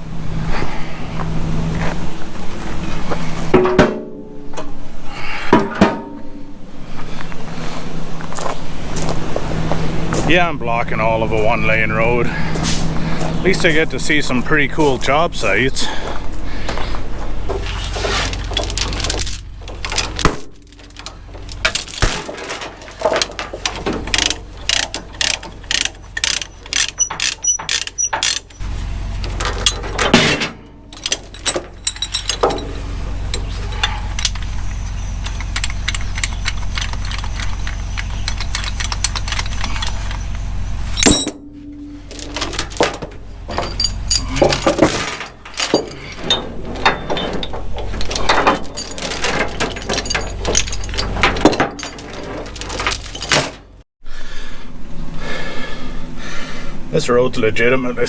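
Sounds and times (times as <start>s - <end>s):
diesel truck idling: 8.7s - 21.6s, 28.5s - 46.8s
metal chains clanking: 17.6s - 53.8s.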